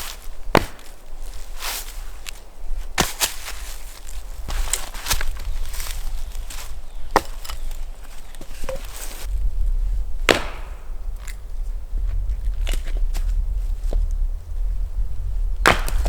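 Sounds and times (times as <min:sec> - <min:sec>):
wood being chopped: 0:00.5 - 0:01.0, 0:03.0 - 0:03.7, 0:04.4 - 0:09.2, 0:10.3 - 0:11.4, 0:15.6 - 0:16.0.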